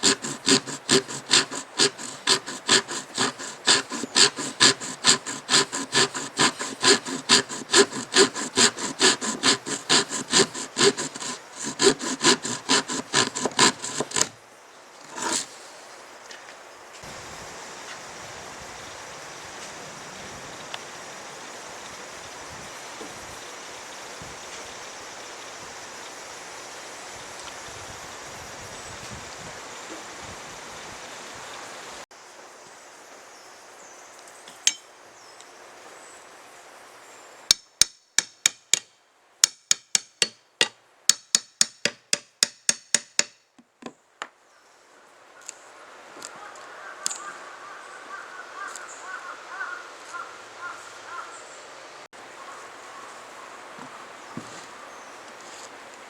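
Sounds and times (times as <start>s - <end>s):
steady outdoor hiss: 0.0s - 56.0s
hammer striking nails: 37.5s - 43.4s.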